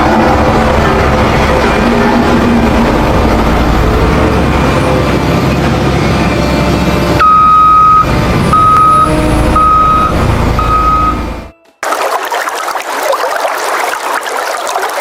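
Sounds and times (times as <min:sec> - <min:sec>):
heavy vehicle engine rumbling: 0:00.0 - 0:11.6
reversing alarm beeping: 0:07.1 - 0:11.6.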